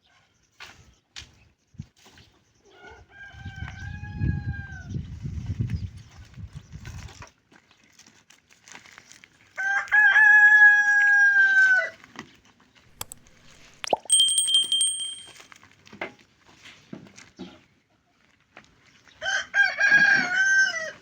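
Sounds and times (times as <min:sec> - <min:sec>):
thin high-pitched call: 0:13.0 - 0:15.4
rooster crowing: 0:19.3 - 0:20.9.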